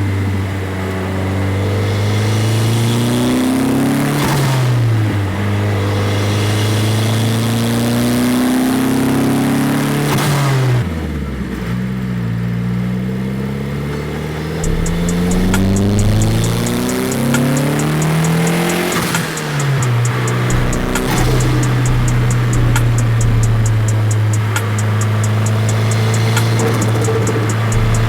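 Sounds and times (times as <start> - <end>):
turbocharged car engine revving: 0.0 - 28.0
turbo blow-off hiss: 14.6 - 28.0.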